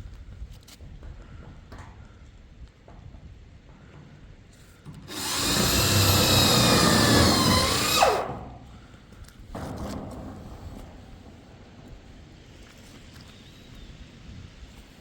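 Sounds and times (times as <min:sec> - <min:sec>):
power tool whining: 0:05.0 - 0:08.6.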